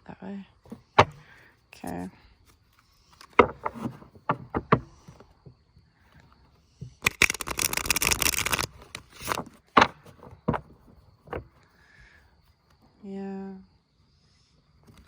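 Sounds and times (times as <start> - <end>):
cards being shuffled: 7.0 - 11.5.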